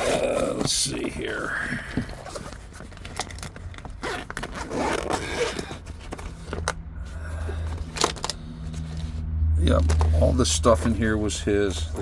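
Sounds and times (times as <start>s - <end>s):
bag zipper pulled open: 0.0s - 0.6s, 4.0s - 5.8s.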